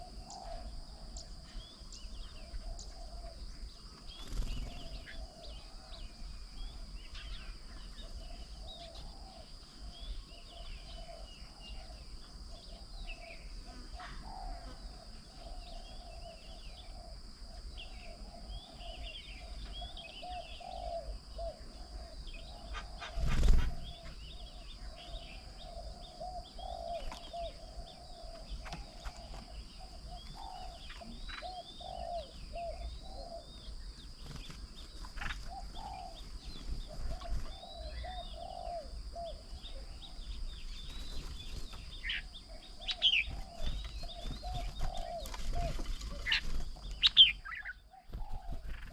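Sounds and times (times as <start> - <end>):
birds chirping: 0.0 - 48.9
repeated lower bird call: 35.2 - 48.9.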